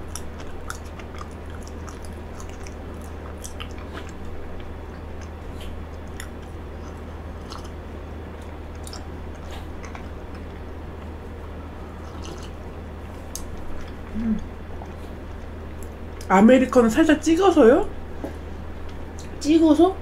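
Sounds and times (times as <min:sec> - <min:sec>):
person chewing: 0:00.0 - 0:16.3.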